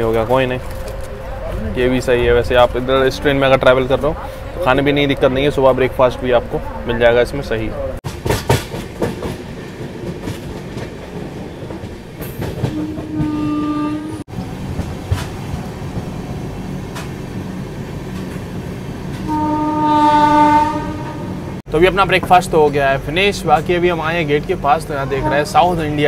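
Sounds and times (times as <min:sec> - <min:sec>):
rail clicks: 0:00.0 - 0:06.7, 0:08.0 - 0:19.4
train rumble: 0:00.0 - 0:26.0
locomotive horn: 0:12.6 - 0:14.2, 0:19.2 - 0:21.6, 0:25.0 - 0:26.0.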